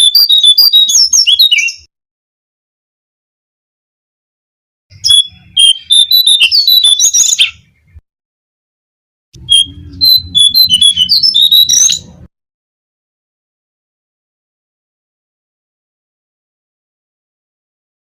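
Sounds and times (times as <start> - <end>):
bird twittering: 0.0 - 1.9, 4.9 - 8.0, 9.4 - 12.3.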